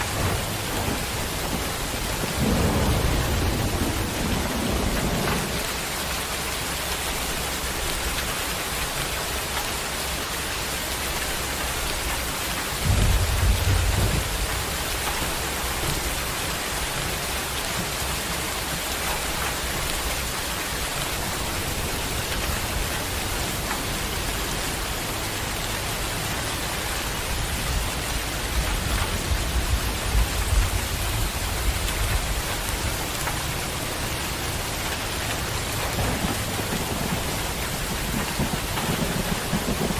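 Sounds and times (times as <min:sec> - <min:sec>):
heavy rain: 0:00.0 - 0:39.9
low rumbles: 0:12.7 - 0:39.9.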